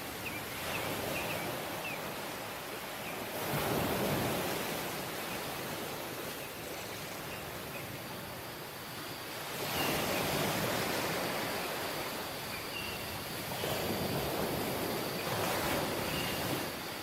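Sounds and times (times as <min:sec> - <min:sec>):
sea waves washing on beach: 0:00.0 - 0:17.0.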